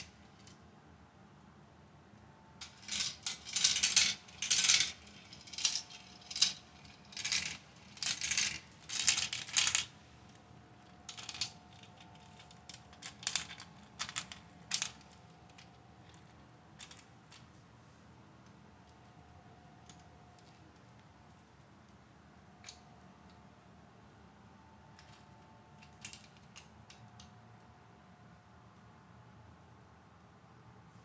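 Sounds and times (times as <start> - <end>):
marbles rattling down a marble run: 2.6 - 10.0, 11.0 - 17.0.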